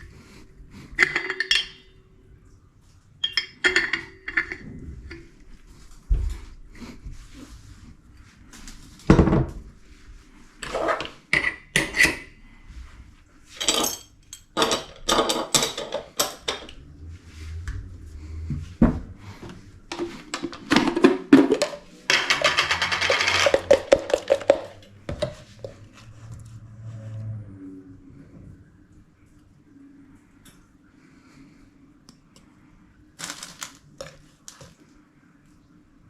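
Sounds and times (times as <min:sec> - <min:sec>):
dishes and utensils clattering: 0:00.9 - 0:02.0, 0:03.2 - 0:05.4, 0:13.5 - 0:16.8, 0:19.9 - 0:25.5.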